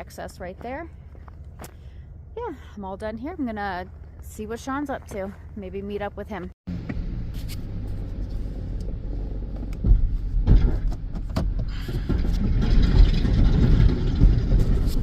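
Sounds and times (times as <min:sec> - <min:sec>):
road noise: 0:00.0 - 0:15.0
truck engine rumble: 0:00.0 - 0:15.0.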